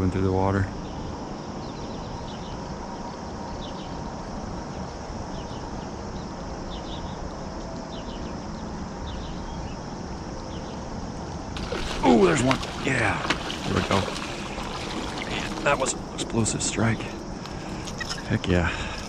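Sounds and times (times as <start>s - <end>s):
steady outdoor hiss: 0.0s - 19.0s
small birds chirping: 11.6s - 19.0s.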